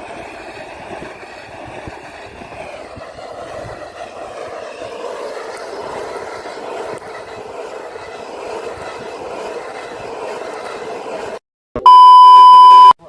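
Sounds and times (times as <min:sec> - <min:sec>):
rc car running over rough ground: 0:00.0 - 0:11.4
electronic beep: 0:11.8 - 0:13.0.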